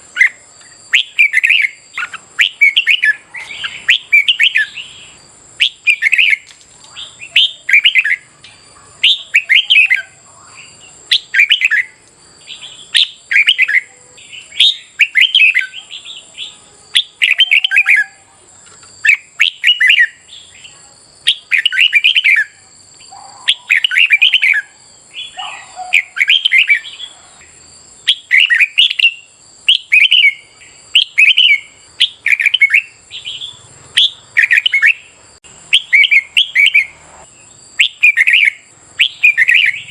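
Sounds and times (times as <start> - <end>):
bird song warbled phrases: 0.0 - 39.9
faint high tone: 13.6 - 14.4.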